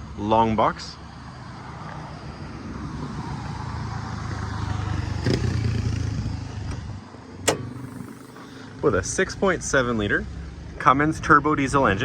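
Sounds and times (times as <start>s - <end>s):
vehicle engine running: 3.5s - 12.0s.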